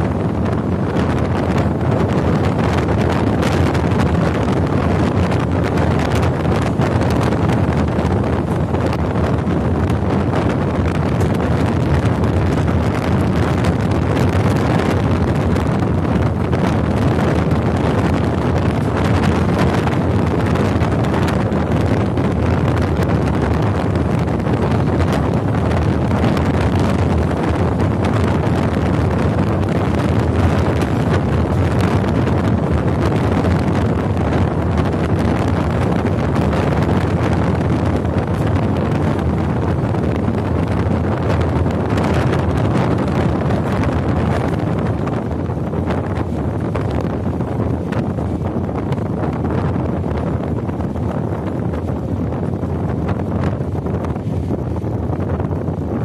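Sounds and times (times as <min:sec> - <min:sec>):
train rumbling along track: 0:00.0 - 0:56.0
wind buffeting microphone: 0:00.0 - 0:56.0.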